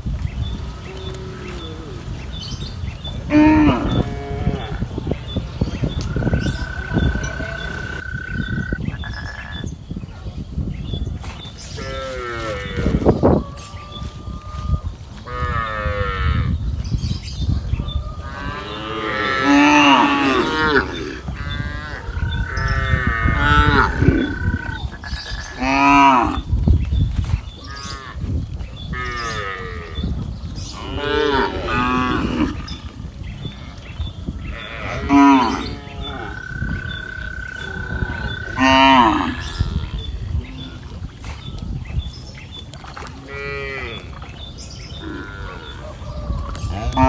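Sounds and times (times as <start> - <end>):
cattle mooing: 3.3 - 4.9, 5.6 - 8.8, 18.1 - 26.5, 30.7 - 32.9, 34.5 - 40.8, 46.7 - 47.0.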